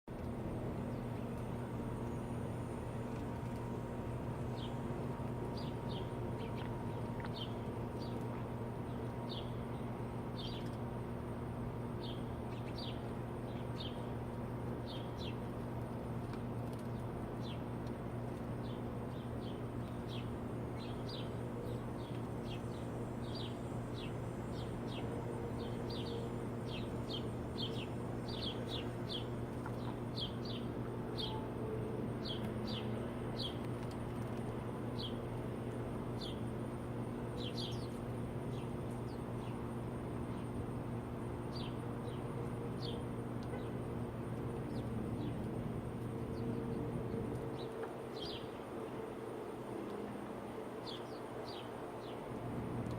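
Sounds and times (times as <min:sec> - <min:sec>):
steady low hum: 0:00.1 - 0:52.9
small birds chirping: 0:00.8 - 0:10.9, 0:11.9 - 0:15.7, 0:16.4 - 0:31.5, 0:32.1 - 0:35.3, 0:36.1 - 0:48.6.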